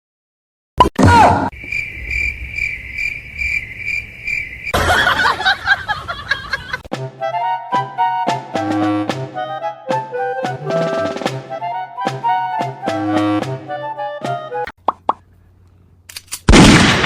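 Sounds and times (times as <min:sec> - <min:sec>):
cricket chirping: 0:01.5 - 0:05.6
music: 0:06.9 - 0:14.7.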